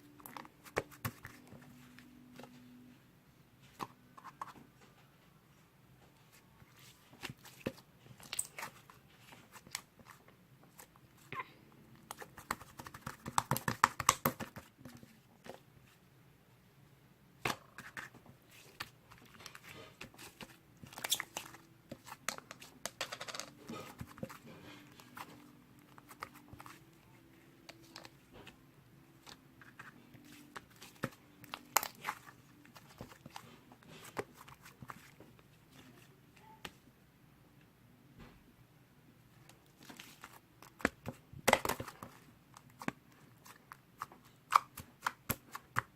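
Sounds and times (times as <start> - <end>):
hands squishing slime: 12.0 - 15.6, 17.6 - 22.8, 29.2 - 36.6, 39.8 - 45.9.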